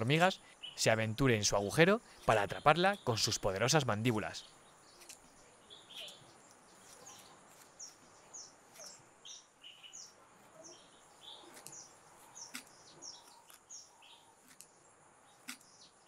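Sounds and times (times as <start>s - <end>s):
faint bird chirps: 4.3s - 16.0s.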